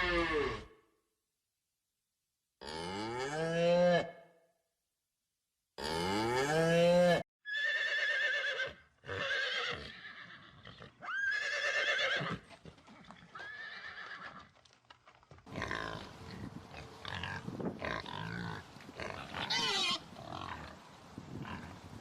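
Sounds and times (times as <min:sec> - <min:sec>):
horse whinnying: 0:00.0 - 0:00.7, 0:07.5 - 0:12.5, 0:13.2 - 0:14.5
rough noisy animal sound: 0:15.5 - 0:22.0.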